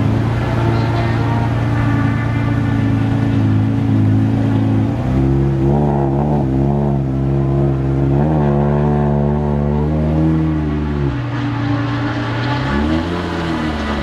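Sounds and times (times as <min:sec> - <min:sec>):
car engine idling: 0:00.0 - 0:08.2
engine throttle blips: 0:00.0 - 0:14.0.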